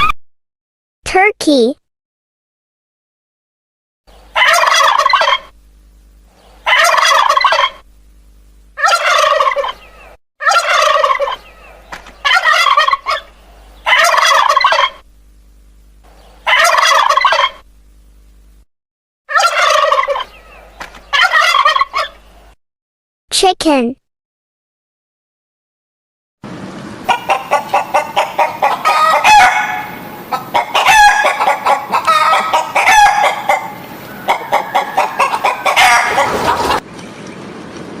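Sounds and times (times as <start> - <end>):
turkey gobbling: 4.3 - 5.5, 6.6 - 7.8, 8.8 - 15.0, 16.4 - 17.6, 19.3 - 22.4, 27.1 - 36.8.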